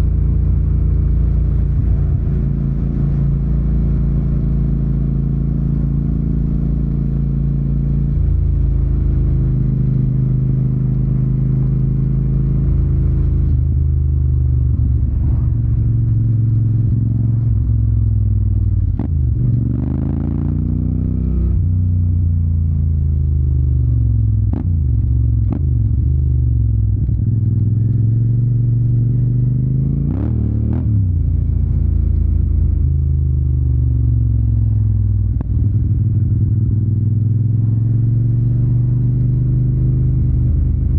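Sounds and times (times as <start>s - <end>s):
motorcycle engine revving: 0.0s - 22.4s.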